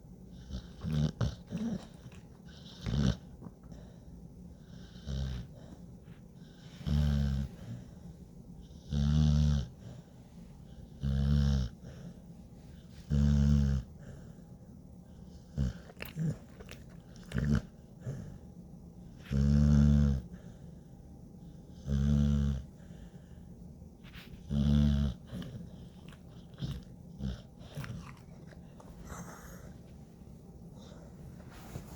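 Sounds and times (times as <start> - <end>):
dog snoring: 0.3 - 5.8, 6.4 - 8.0, 8.6 - 10.1, 10.7 - 14.4, 15.1 - 18.4, 19.1 - 20.6, 21.5 - 23.4, 24.0 - 29.9.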